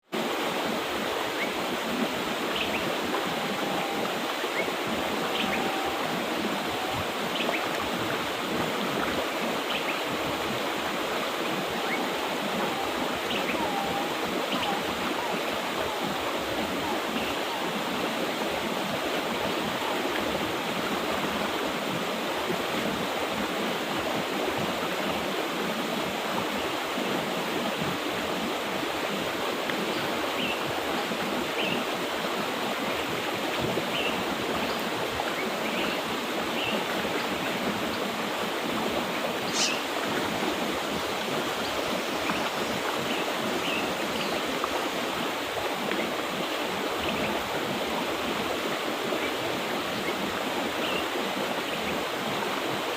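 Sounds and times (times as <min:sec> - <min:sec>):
river water rushing over rocks: 0:00.1 - 0:52.9
faint bird chirps: 0:39.5 - 0:39.9.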